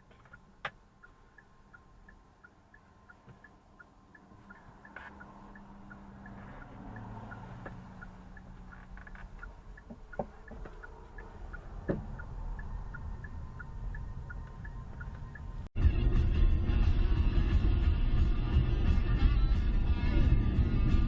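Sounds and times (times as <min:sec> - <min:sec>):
turn signal ticking: 0:00.0 - 0:15.7
engine and road rumble: 0:00.0 - 0:21.0.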